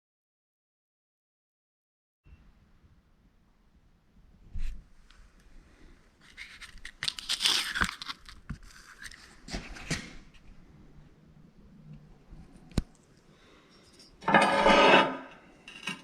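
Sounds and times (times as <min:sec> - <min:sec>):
rustling and scraping: 0:06.2 - 0:10.6, 0:13.5 - 0:16.0.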